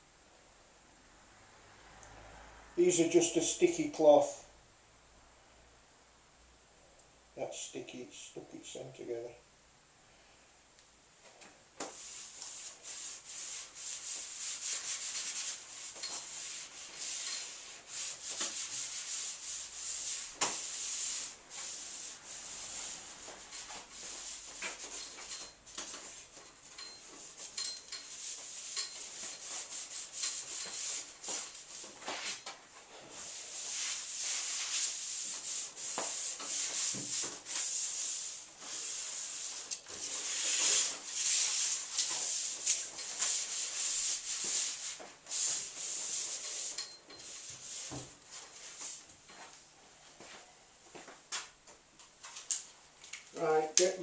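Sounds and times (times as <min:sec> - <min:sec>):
cloth rubbing on panel: 0:11.8 - 0:49.1.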